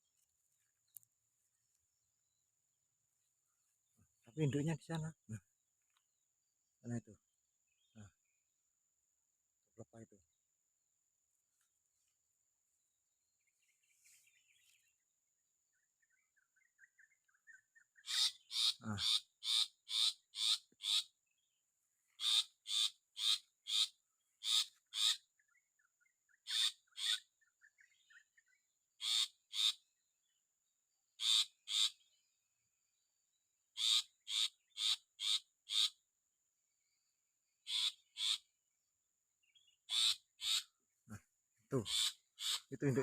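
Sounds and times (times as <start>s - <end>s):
bird harsh rasping calls: 17.8s - 21.2s, 22.1s - 25.4s, 26.3s - 27.3s, 29.0s - 29.9s, 31.2s - 32.1s, 33.7s - 36.0s, 37.6s - 38.5s, 39.6s - 43.0s.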